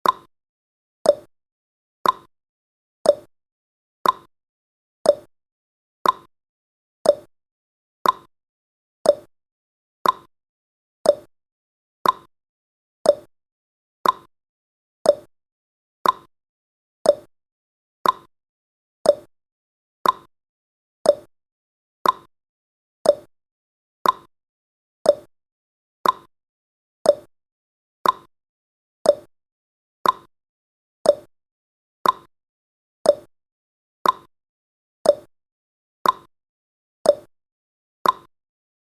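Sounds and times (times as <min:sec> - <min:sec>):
timer ticking: 0:00.0 - 0:00.3, 0:01.0 - 0:01.3, 0:02.0 - 0:02.3, 0:03.0 - 0:03.3, 0:04.0 - 0:04.3, 0:05.1 - 0:05.3, 0:06.0 - 0:06.3, 0:07.0 - 0:07.3, 0:08.0 - 0:08.3, 0:09.0 - 0:09.3, 0:10.0 - 0:10.3, 0:11.0 - 0:11.3, 0:12.0 - 0:12.3, 0:13.0 - 0:13.3, 0:14.0 - 0:14.3, 0:15.0 - 0:15.3, 0:16.0 - 0:16.3, 0:17.0 - 0:17.3, 0:18.0 - 0:18.3, 0:19.0 - 0:19.3, 0:20.0 - 0:20.3, 0:21.0 - 0:21.3, 0:22.0 - 0:22.3, 0:23.0 - 0:23.3, 0:24.0 - 0:24.3, 0:25.0 - 0:25.3, 0:26.0 - 0:26.3, 0:27.0 - 0:27.3, 0:28.0 - 0:28.3, 0:29.0 - 0:29.3, 0:30.0 - 0:30.3, 0:31.0 - 0:31.3, 0:32.0 - 0:32.3, 0:33.0 - 0:33.3, 0:34.0 - 0:34.3, 0:35.0 - 0:35.3, 0:36.0 - 0:36.3, 0:37.1 - 0:37.3, 0:38.0 - 0:38.3.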